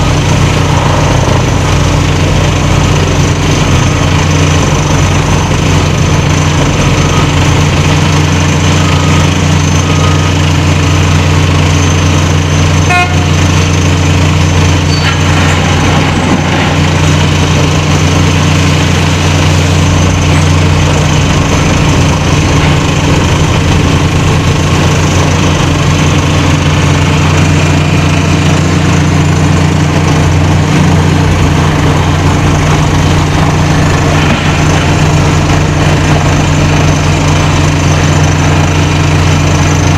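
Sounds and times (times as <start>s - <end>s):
heavy machinery low hum: 0.0s - 39.9s
short signal sound: 12.8s - 13.4s, 14.8s - 16.8s.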